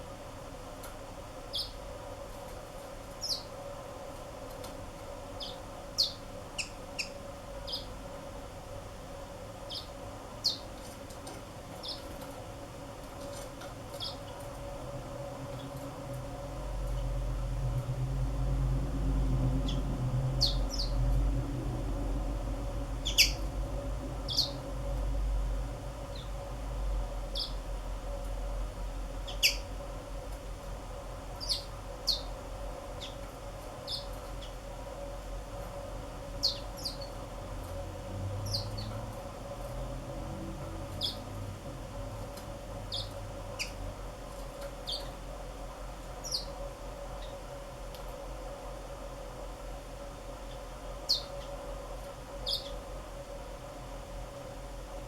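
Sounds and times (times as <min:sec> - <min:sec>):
steady low hum: 0:00.0 - 0:55.0
bird chirps: 0:23.0 - 0:23.4, 0:27.4 - 0:27.6, 0:29.3 - 0:29.6, 0:33.9 - 0:34.5, 0:52.4 - 0:52.8.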